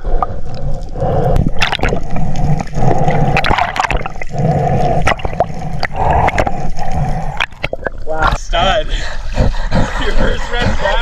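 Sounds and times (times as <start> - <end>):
sea water sloshing and splashing: 0.7 - 8.4.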